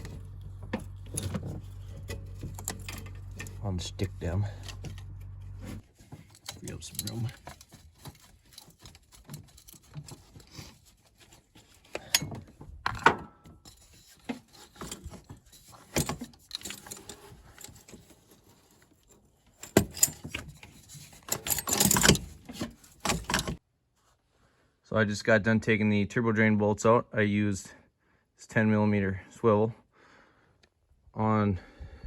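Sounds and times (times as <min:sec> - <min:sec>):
socket wrench clinking on metal: 0:00.0 - 0:03.7, 0:06.4 - 0:07.6
metal rattling: 0:00.0 - 0:10.4.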